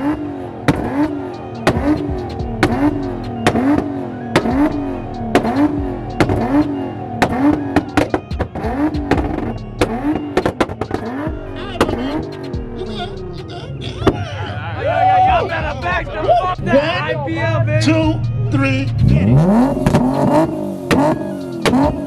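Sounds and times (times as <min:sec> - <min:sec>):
car engine revs rising and falling: 0:00.0 - 0:22.0
exhaust pops and cracks: 0:00.7 - 0:02.9, 0:07.2 - 0:11.1.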